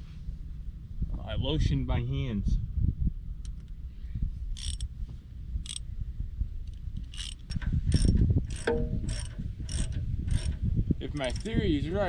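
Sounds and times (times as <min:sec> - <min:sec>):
hand tools clicking and scraping metal: 0:04.6 - 0:04.9, 0:06.7 - 0:11.6.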